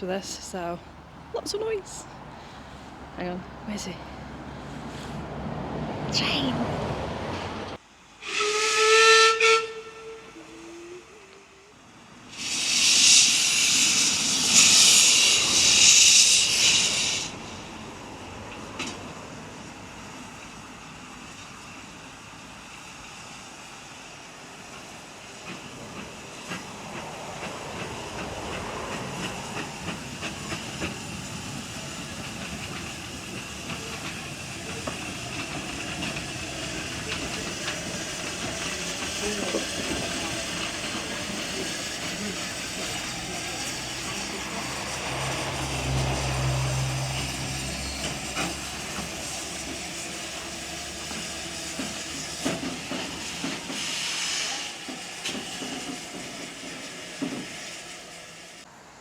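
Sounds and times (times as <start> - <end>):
steam hissing: 8.0 - 18.2, 19.6 - 58.7
locomotive rumble with light knocks: 25.4 - 53.8.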